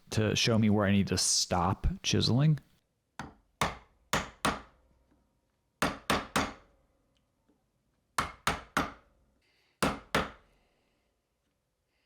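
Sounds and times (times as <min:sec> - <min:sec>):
mallet striking chisel into wood: 0:03.2 - 0:04.8, 0:05.8 - 0:06.7, 0:08.2 - 0:09.0, 0:09.8 - 0:10.4.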